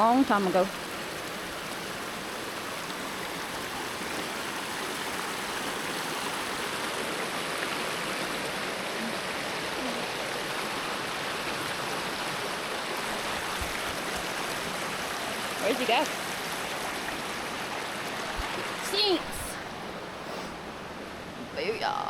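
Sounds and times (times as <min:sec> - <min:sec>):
creek flowing over rocks: 0:00.0 - 0:22.0.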